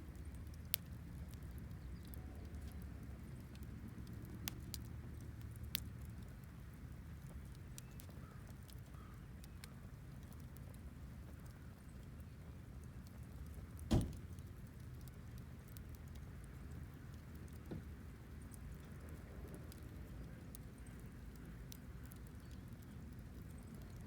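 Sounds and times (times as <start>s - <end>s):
sharp crack of fire: 13.9s - 14.6s
wood fire crackling: 13.9s - 16.2s.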